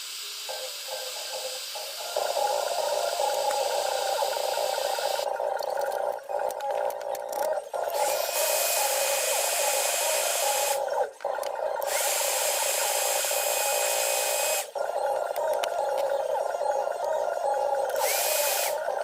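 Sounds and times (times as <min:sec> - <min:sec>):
small electric tool whining: 0:00.0 - 0:05.2, 0:07.8 - 0:10.8, 0:11.8 - 0:14.7, 0:17.9 - 0:18.8.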